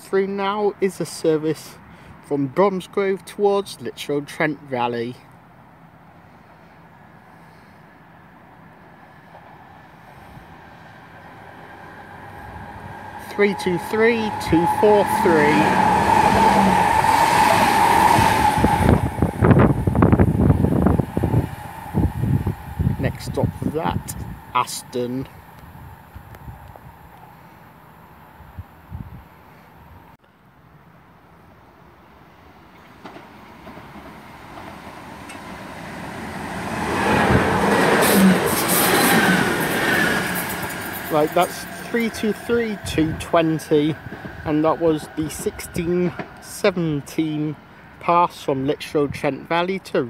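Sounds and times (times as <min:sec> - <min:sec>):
electric train whine: 0:08.0 - 0:30.1, 0:32.1 - 0:48.0.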